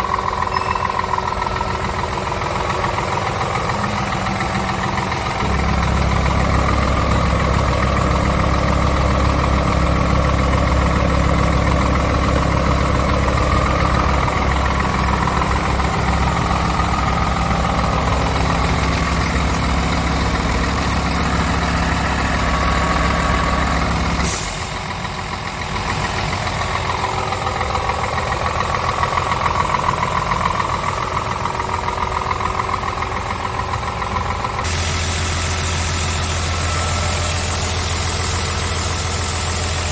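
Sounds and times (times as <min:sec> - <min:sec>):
truck diesel engine idling: 0:00.0 - 0:39.9
short air hiss: 0:24.2 - 0:24.8, 0:34.7 - 0:38.4.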